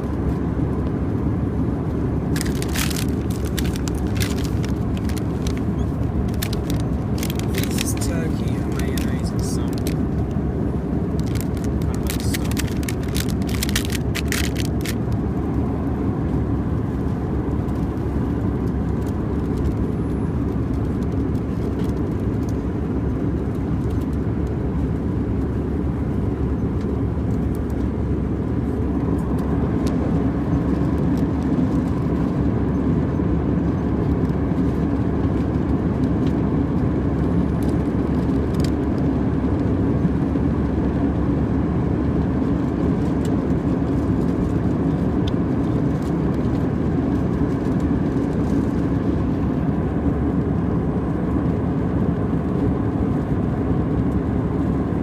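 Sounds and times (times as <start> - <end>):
airplane cabin noise in flight: 0.0 - 55.0.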